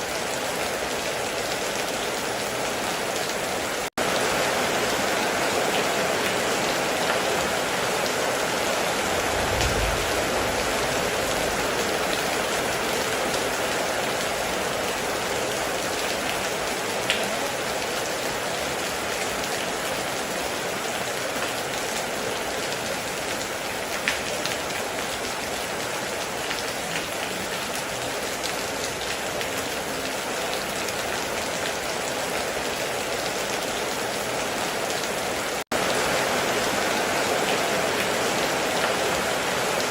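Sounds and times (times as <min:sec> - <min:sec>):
heavy rain on a metal roof: 0:00.0 - 0:39.9
loud single raindrops: 0:09.0 - 0:13.5
low rumble: 0:09.2 - 0:11.8.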